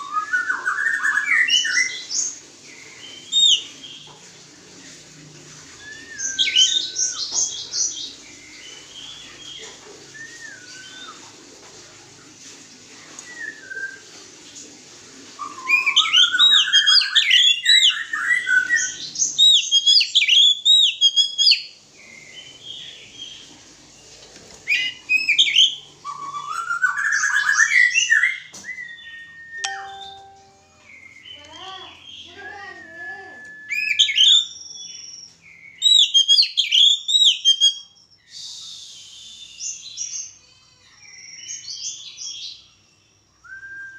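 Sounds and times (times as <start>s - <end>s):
bird singing whistled phrases: 5.8s - 7.3s, 15.4s - 21.7s, 32.2s - 35.1s, 35.8s - 40.2s, 43.4s - 43.9s.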